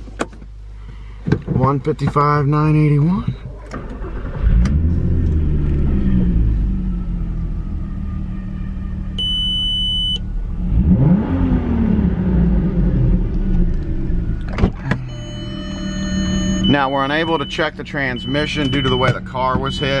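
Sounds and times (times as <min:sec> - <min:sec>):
car engine running and revving: 0:03.7 - 0:20.0
high electronic beep: 0:09.2 - 0:10.2, 0:15.0 - 0:20.0.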